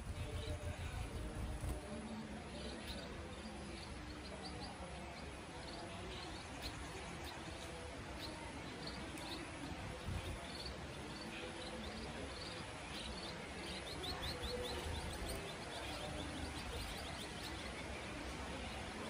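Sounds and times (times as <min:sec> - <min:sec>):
low outdoor rumble: 0:00.0 - 0:02.0
small birds chirping: 0:00.0 - 0:19.0.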